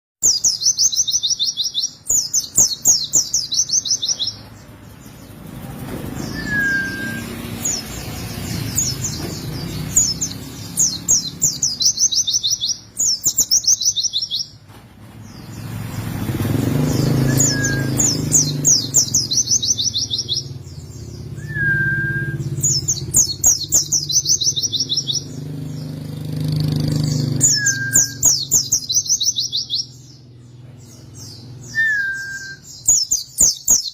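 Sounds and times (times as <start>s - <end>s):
bird singing fast high trills: 0.2s - 4.6s, 6.1s - 14.6s, 15.4s - 33.9s
short low bird whistles: 6.2s - 7.4s, 17.3s - 18.2s, 31.7s - 33.0s.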